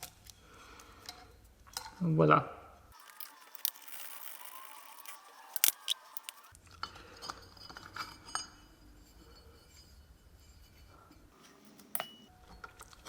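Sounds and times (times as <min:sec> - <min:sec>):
light scraping of steel parts: 0:03.0 - 0:06.5, 0:10.6 - 0:12.3.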